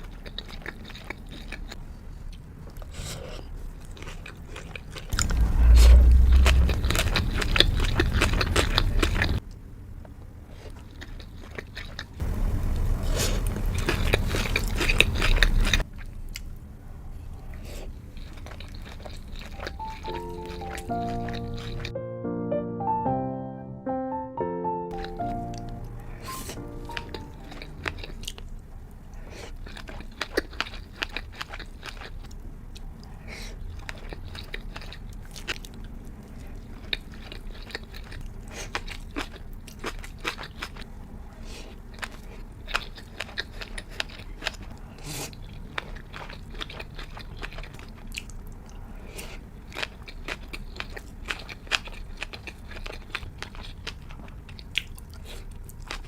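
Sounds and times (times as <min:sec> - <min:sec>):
person chewing food: 0:00.0 - 0:09.5, 0:10.5 - 0:12.2, 0:13.0 - 0:16.6, 0:17.4 - 0:21.9, 0:24.9 - 0:56.0.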